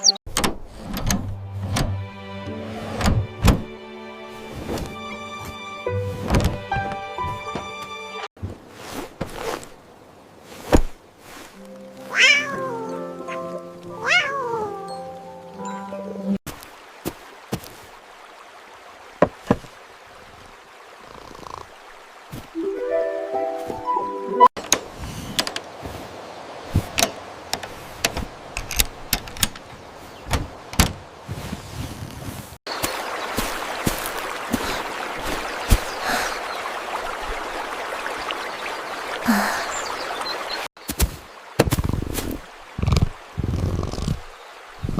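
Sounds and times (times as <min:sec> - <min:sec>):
soft background music: 0:01.1 - 0:08.3, 0:11.6 - 0:16.4, 0:22.6 - 0:24.5
cat meowing: 0:12.1 - 0:12.9, 0:14.0 - 0:14.8.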